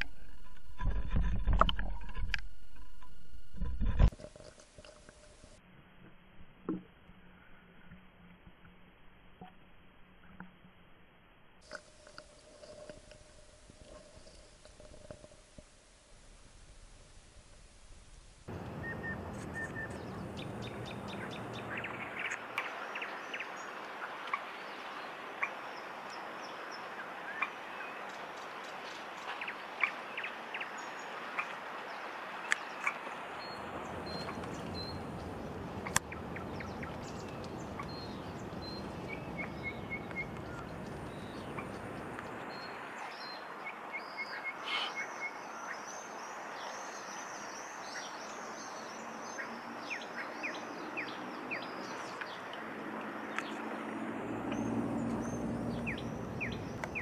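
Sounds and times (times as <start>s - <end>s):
birds calling high notes: 18.5s - 23.2s.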